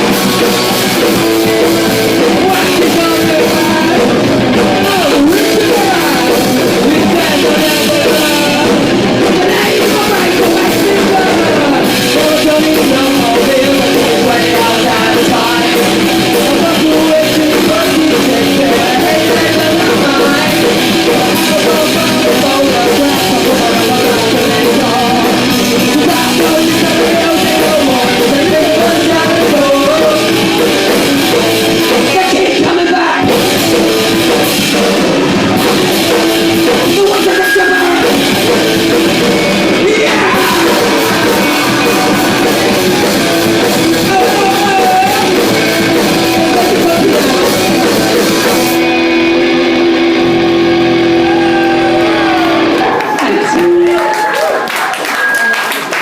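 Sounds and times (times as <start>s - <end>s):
person singing: 0.0s - 54.1s
drums: 0.0s - 56.0s
electric guitars: 0.0s - 56.0s.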